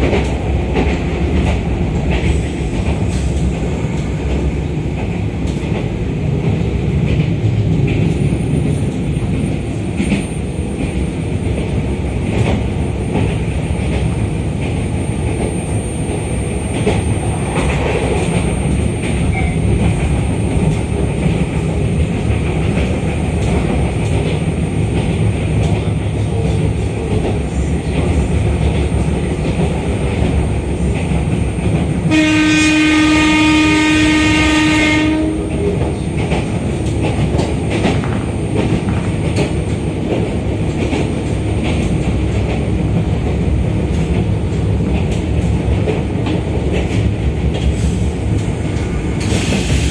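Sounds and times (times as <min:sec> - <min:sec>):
train wheels running on rails: 0:00.0 - 0:49.9
train horn: 0:32.1 - 0:35.8.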